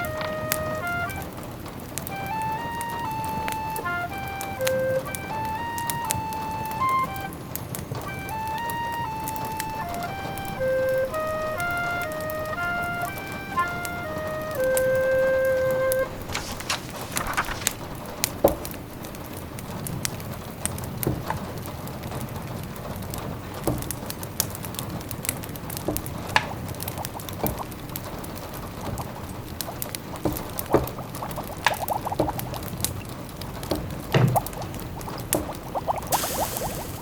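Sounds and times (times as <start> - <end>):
rain patter: 0.0 - 37.0
wood fire crackling: 0.0 - 37.0
pot bubbling: 26.5 - 37.0.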